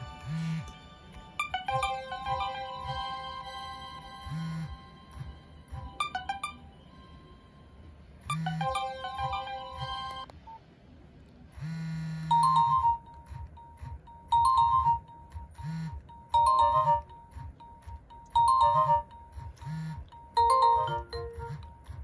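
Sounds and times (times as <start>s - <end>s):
brief tone pattern: 4.2s - 10.6s, 12.3s - 22.0s
phone alert beeps: 5.8s - 6.8s, 8.3s - 10.3s, 12.3s - 21.8s.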